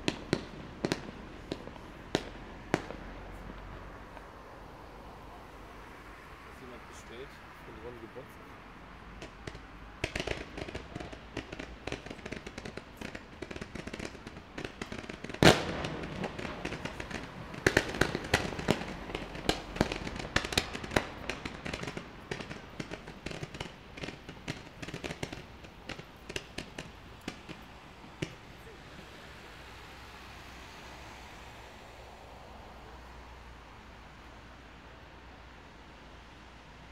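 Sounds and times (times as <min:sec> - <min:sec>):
loud firework bangs: 0:00.0 - 0:04.2, 0:09.1 - 0:29.2
fireworks crackling and popping: 0:00.0 - 0:36.8.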